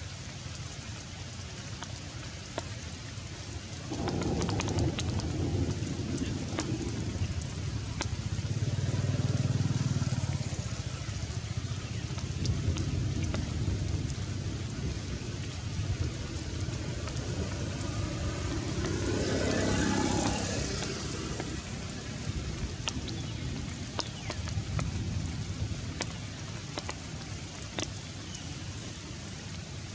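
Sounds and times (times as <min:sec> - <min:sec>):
heavy rain falling: 0:00.0 - 0:29.9
sharp drips: 0:00.0 - 0:29.9
low rumble: 0:03.9 - 0:23.7
rushing swell: 0:16.1 - 0:22.4.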